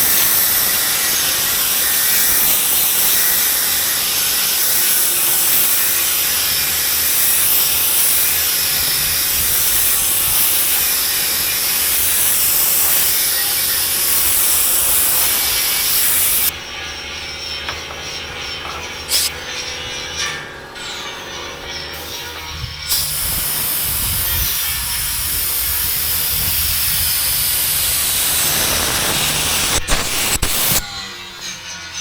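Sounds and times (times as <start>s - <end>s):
paint spray gun hissing: 0.0s - 16.5s, 19.1s - 19.3s, 22.9s - 30.8s.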